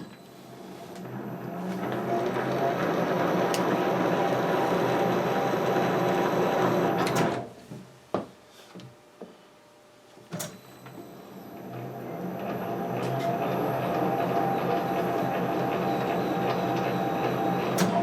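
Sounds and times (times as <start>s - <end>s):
metal lathe running: 1.1s - 7.2s.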